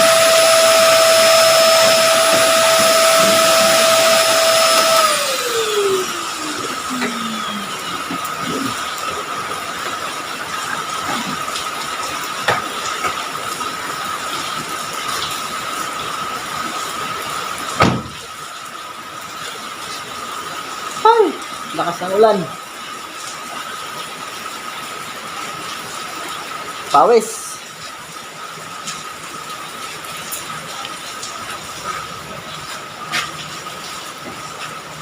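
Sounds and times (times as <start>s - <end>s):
electric motor winding down: 0.0s - 11.6s
heavy rain hissing: 0.0s - 35.0s.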